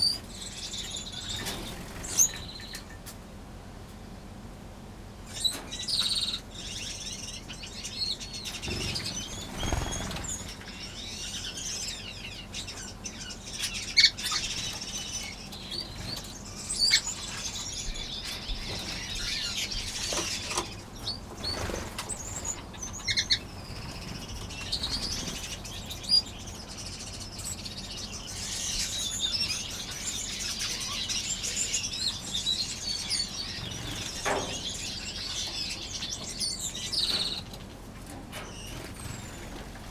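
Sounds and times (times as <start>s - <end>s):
wings fluttering: 0.0s - 3.0s, 8.5s - 11.4s, 14.2s - 26.6s, 32.2s - 36.4s, 37.1s - 39.9s
finches chirping and twittering: 0.0s - 3.1s, 5.3s - 39.9s.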